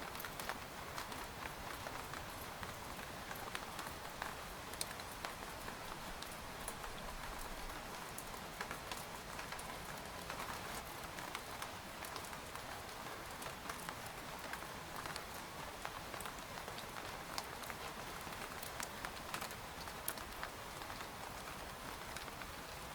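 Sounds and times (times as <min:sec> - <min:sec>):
rain pattering on a tent: 0:00.0 - 0:22.9.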